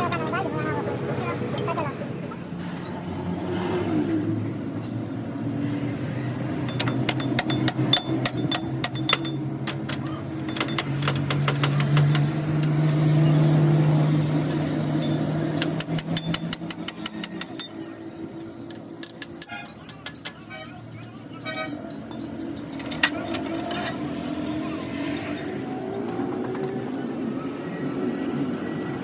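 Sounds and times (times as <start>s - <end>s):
rapid metallic clicks: 14.4s - 17.8s.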